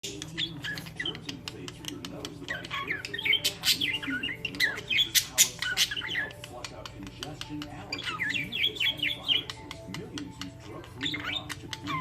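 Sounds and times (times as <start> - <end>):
budgerigars chirping: 0.0 - 12.0
budgerigar squawks: 2.5 - 6.4, 10.9 - 12.0.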